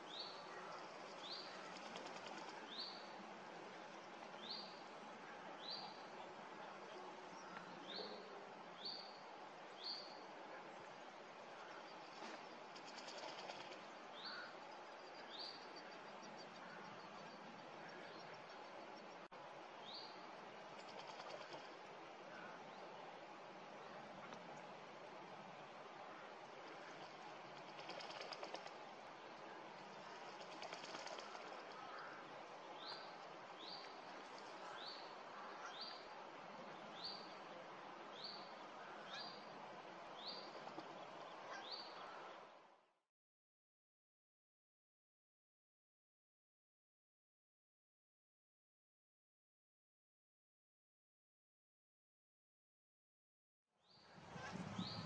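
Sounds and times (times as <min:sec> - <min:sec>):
faint outdoor hiss: 0:00.0 - 0:43.0.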